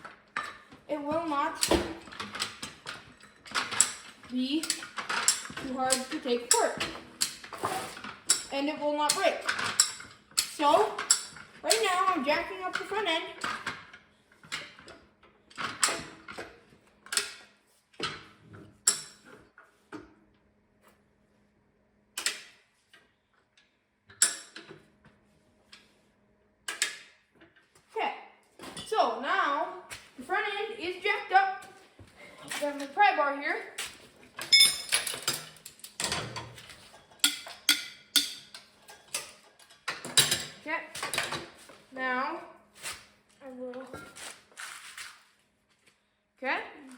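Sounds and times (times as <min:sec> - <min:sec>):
pry bar clanking on metal: 0:37.2 - 0:40.5.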